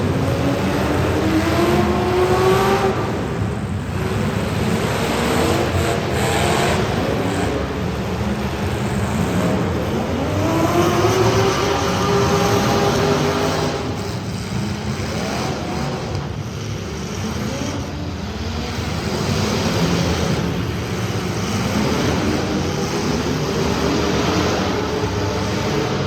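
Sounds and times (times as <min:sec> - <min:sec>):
race car engines accelerating: 0:00.0 - 0:26.0.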